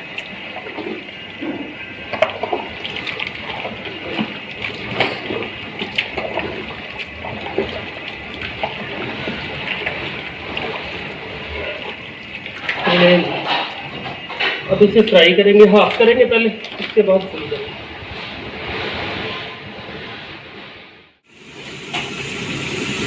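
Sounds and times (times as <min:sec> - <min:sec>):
wet squishing of fish mixed by hand: 0:00.0 - 0:18.4.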